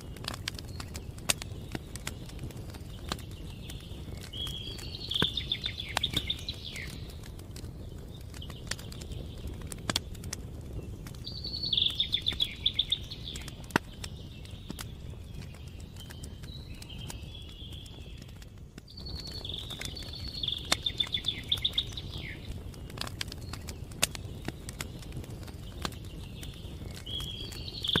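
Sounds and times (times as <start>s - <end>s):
campfire crackling and popping: 0.0s - 28.0s
songbird trilling: 3.7s - 7.1s, 11.3s - 13.6s, 19.0s - 22.5s.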